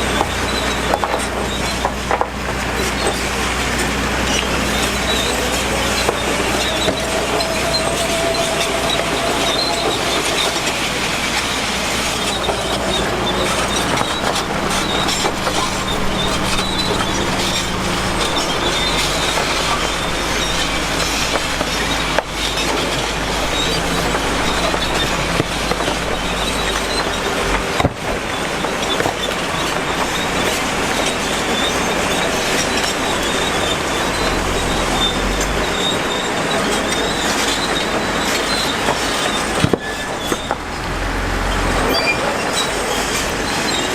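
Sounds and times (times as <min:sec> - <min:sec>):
diesel engine running: 0:00.0 - 0:43.9
metal tracks clattering: 0:00.0 - 0:43.9
faint squeal: 0:04.2 - 0:27.6, 0:41.4 - 0:43.9.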